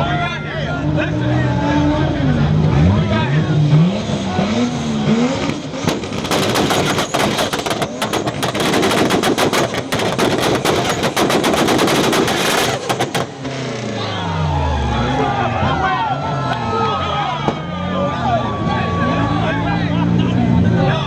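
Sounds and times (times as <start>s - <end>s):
car exhaust popping at high revs: 5.1s - 13.8s.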